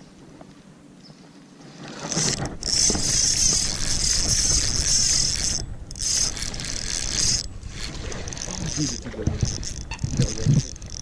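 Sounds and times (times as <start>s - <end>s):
fishing reel gears whirring: 1.9s - 11.0s
microphone handling rumble: 7.5s - 11.0s.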